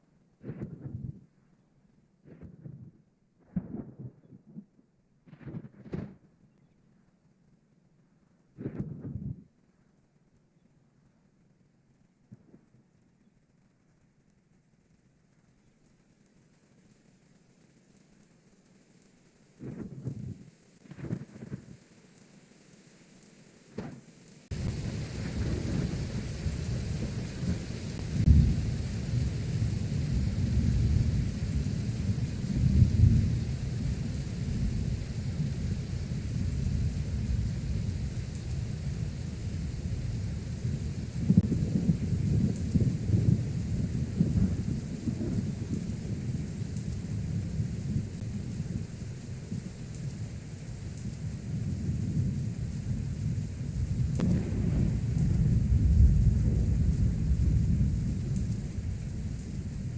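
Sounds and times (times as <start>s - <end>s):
thunder rumble: 0.0s - 1.3s, 2.2s - 6.4s, 8.4s - 9.6s, 19.5s - 21.9s, 23.8s - 59.9s
rain hiss: 0.0s - 59.9s.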